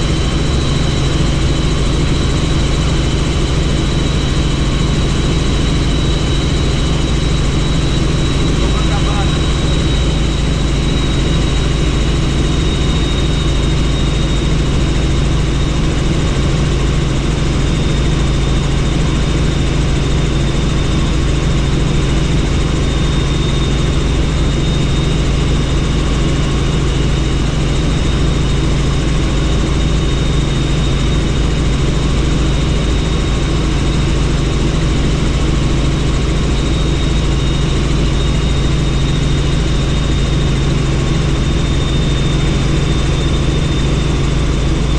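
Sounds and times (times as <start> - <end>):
high-pitched whine: 0.0 - 15.7
helicopter engine and rotor: 0.0 - 44.9.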